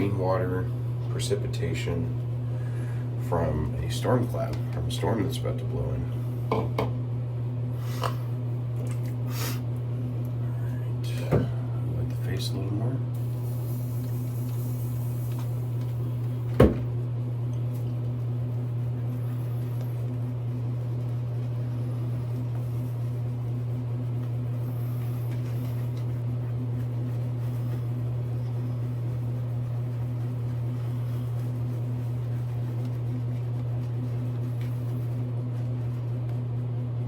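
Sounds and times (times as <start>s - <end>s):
low hum: 13.0s - 37.0s.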